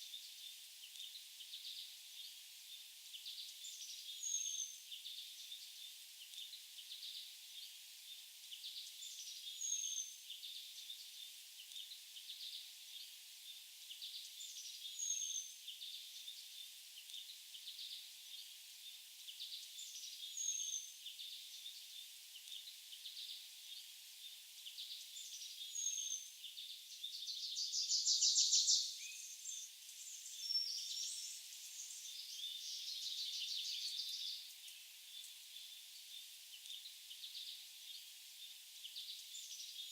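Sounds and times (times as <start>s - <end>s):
birds singing and chirping: 19.3s - 39.9s.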